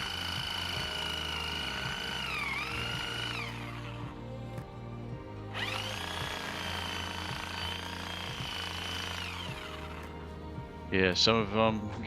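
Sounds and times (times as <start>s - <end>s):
reciprocating saw cutting wood: 0.0s - 4.7s, 5.5s - 10.4s
background music: 0.0s - 12.0s.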